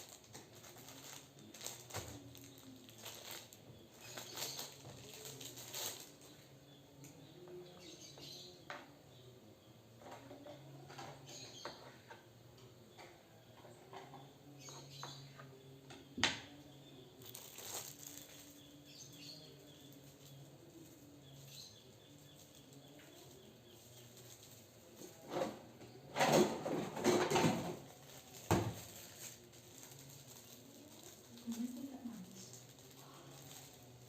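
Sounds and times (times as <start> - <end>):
kitchen clattering and rustling: 22.2 - 31.7.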